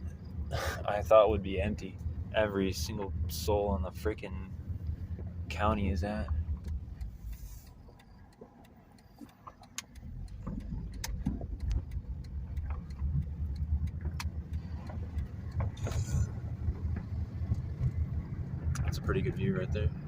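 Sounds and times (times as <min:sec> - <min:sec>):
car road and engine rumble: 0:00.0 - 0:20.0
faint short pops and clicks: 0:06.3 - 0:18.0.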